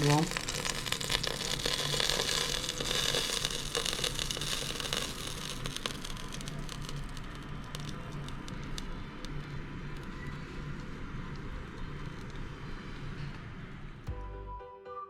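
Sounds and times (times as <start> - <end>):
chicken sizzling in a pan: 0.0 - 10.8.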